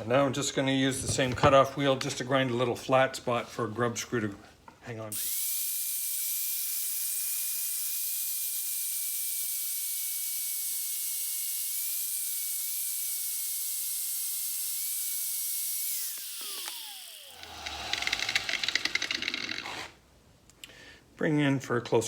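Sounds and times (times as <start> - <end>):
cutoff wheel grinding metal: 12.0 - 20.0.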